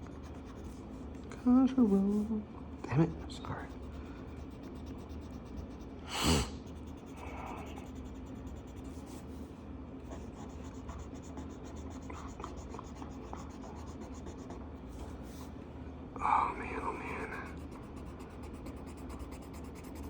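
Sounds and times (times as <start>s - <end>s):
marker scratching on paper: 0.0s - 0.9s, 3.7s - 6.0s, 6.6s - 9.5s, 10.1s - 15.5s, 17.1s - 20.0s.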